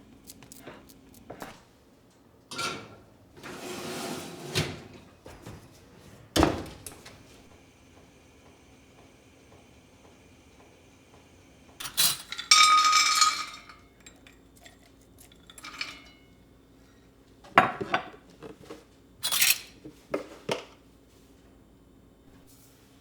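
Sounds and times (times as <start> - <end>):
dishes and cutlery clattering: 11.8 - 16.3, 17.5 - 20.7
dishes knocking and clinking: 11.8 - 16.3, 17.5 - 18.7.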